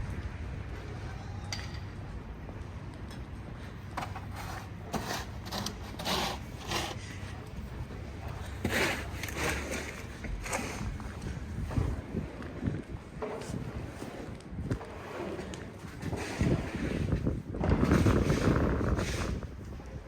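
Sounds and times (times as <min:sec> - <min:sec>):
low city rumble: 0:00.0 - 0:20.0
snow crunching and scraping: 0:08.4 - 0:19.6.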